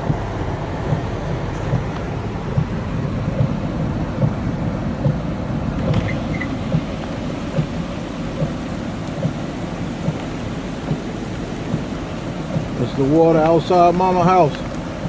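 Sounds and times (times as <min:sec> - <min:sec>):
soft repeating thump: 0:00.0 - 0:07.8, 0:08.4 - 0:09.4, 0:10.0 - 0:12.8
heavy rain and wind: 0:00.0 - 0:15.0.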